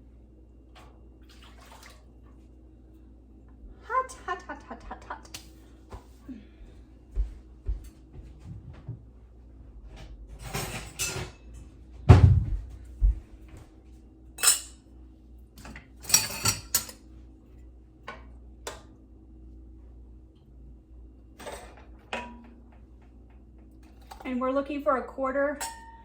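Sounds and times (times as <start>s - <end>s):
utensils and glass jars clinking: 10.4s - 11.4s, 14.4s - 14.8s, 15.6s - 17.0s.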